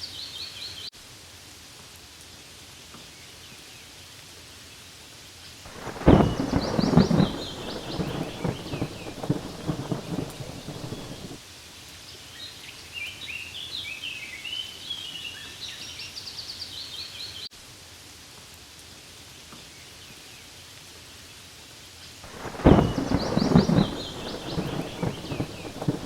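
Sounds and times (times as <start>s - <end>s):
steady rain hiss: 0.0s - 26.0s
low rolling thunder: 5.7s - 11.4s, 22.3s - 26.0s
high bird chirps: 22.4s - 26.0s.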